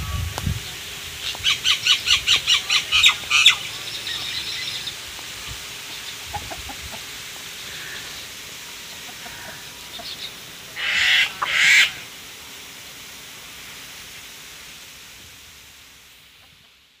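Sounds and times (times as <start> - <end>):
harsh bird calls: 0.0 - 5.1, 7.5 - 12.1
steady background hiss: 0.0 - 17.0.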